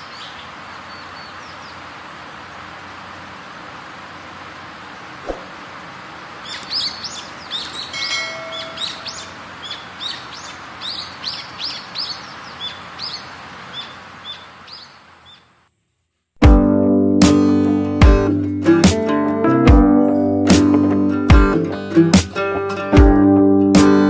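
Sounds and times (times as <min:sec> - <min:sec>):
small bird chirping: 0:00.0 - 0:01.8, 0:06.4 - 0:15.6
outdoor background hiss: 0:00.0 - 0:24.0.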